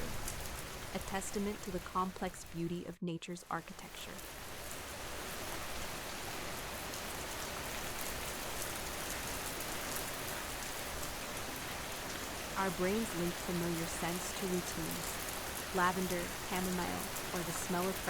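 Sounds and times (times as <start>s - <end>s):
steady rain hissing: 0.0s - 2.8s, 3.7s - 18.0s
light rain pattering: 0.0s - 2.9s, 3.5s - 18.0s.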